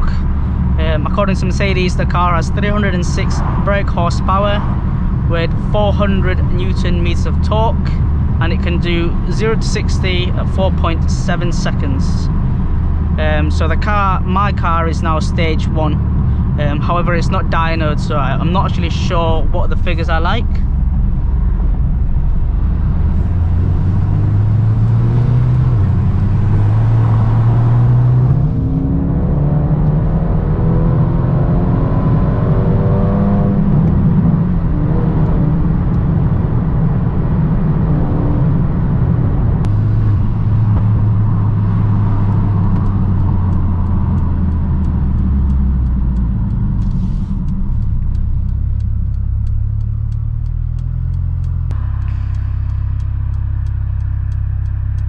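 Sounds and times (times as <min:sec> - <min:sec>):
car engine revving: 0:00.0 - 0:55.0
faint clicks: 0:42.7 - 0:55.0.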